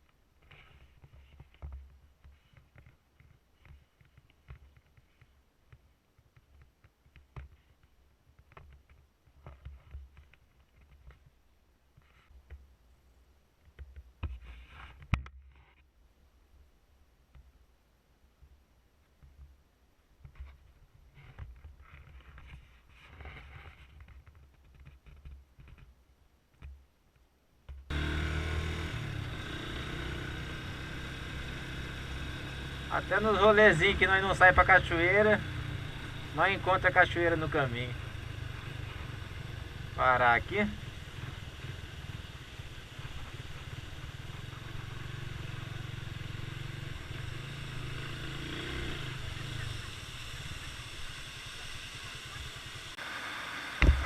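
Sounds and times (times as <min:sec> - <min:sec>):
soft handling noises: 0:00.0 - 0:12.7
motorcycle engine running: 0:27.9 - 0:53.0, 0:53.8 - 0:54.0
hiss: 0:48.9 - 0:54.0.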